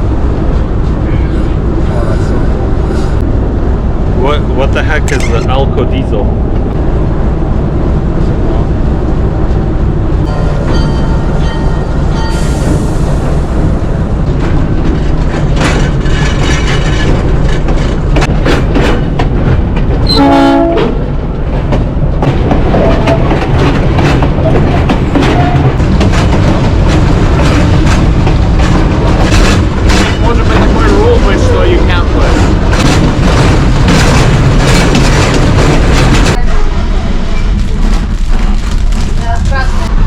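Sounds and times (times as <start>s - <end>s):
diesel train rumbling: 0.0s - 40.0s
rail clicks: 4.3s - 40.0s
train horn tone: 20.0s - 21.0s.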